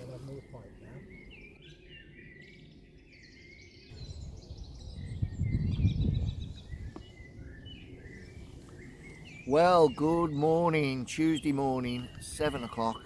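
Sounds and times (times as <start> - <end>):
small birds singing: 0.0 - 13.0
low rumbling noise: 3.9 - 9.5.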